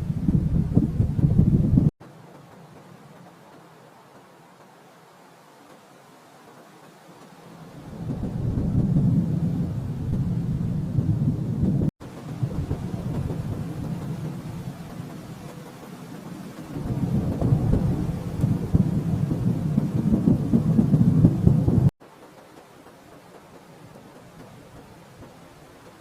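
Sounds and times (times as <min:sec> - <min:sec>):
rolling thunder: 0:00.0 - 0:01.9, 0:07.7 - 0:21.9.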